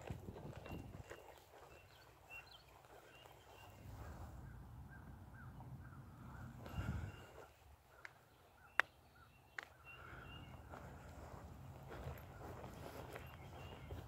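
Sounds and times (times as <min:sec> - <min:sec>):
soft footsteps: 0:00.0 - 0:04.5, 0:09.6 - 0:14.0
birds chirping: 0:00.0 - 0:14.0
low outdoor rumble: 0:03.2 - 0:08.2, 0:10.0 - 0:14.0.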